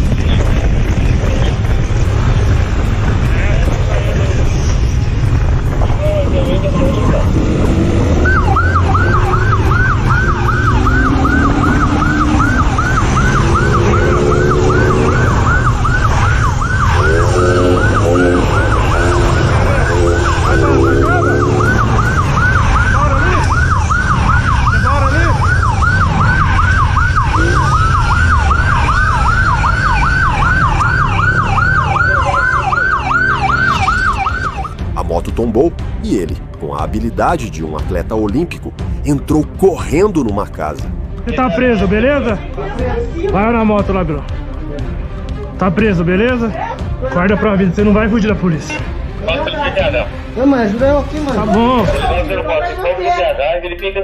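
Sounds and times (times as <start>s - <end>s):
police siren yelping: 7.0s - 34.8s.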